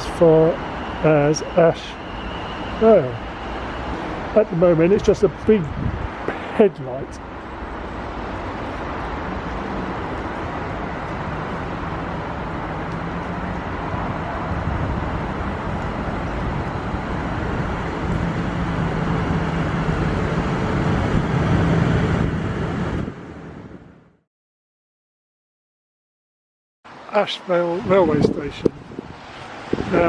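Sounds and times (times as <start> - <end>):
electric train pulling into platform: 0.0 - 6.2, 6.8 - 23.9.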